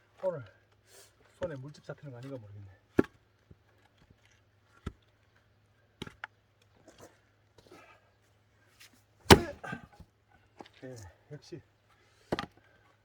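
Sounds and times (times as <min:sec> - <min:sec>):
wood clattering: 0:09.3 - 0:09.9
wood splitting: 0:09.3 - 0:09.9
axe chopping firewood: 0:09.3 - 0:10.0.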